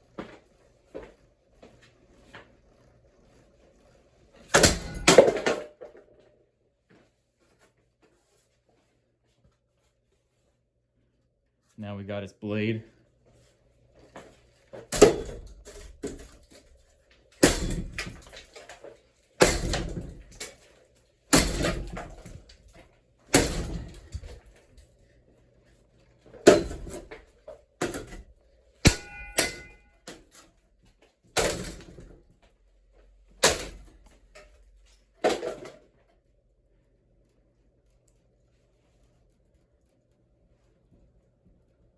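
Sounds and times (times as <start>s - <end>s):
fan blade thumping: 28.8s - 30.2s.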